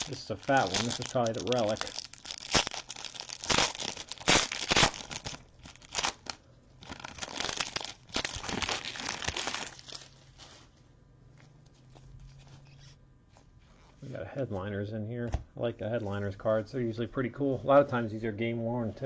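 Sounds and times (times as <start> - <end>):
card pack wrapper crinkling and tearing: 0.0 - 10.6
wrapper handling: 0.0 - 10.7.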